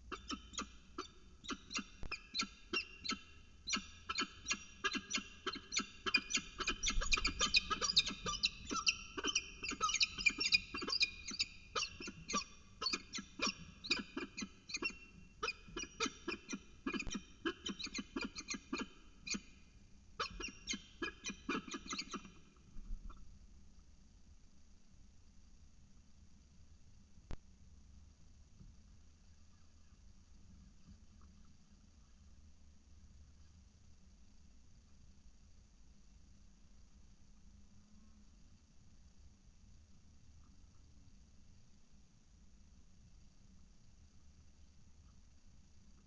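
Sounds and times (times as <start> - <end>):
falcon rapid short calls: 0.1 - 19.5, 20.2 - 22.3.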